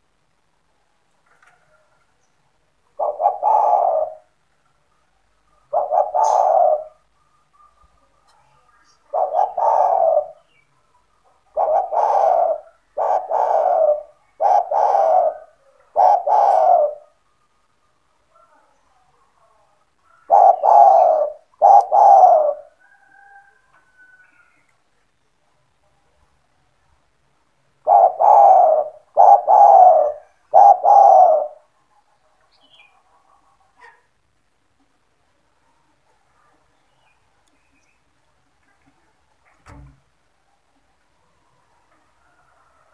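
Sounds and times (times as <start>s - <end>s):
dove cooing: 2.9s - 4.4s, 5.5s - 8.0s, 9.0s - 10.6s, 11.3s - 17.2s, 20.1s - 24.5s, 27.8s - 31.8s.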